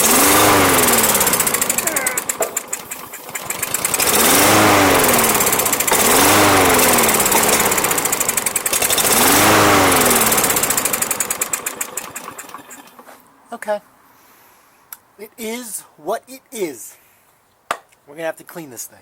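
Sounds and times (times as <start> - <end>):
lawn mower engine running unevenly: 0.0 - 13.0.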